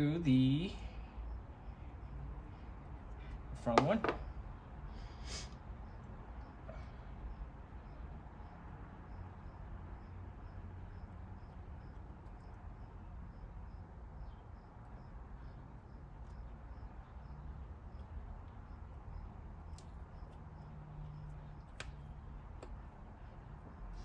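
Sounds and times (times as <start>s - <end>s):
cricket chirping: 0.0s - 24.0s
faint clicks: 21.3s - 23.0s.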